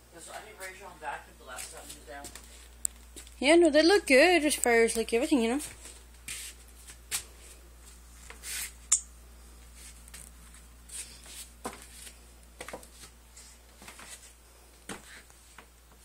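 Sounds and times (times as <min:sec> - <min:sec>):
steady low hum: 0:00.0 - 0:16.0
soft rustles: 0:09.5 - 0:16.0.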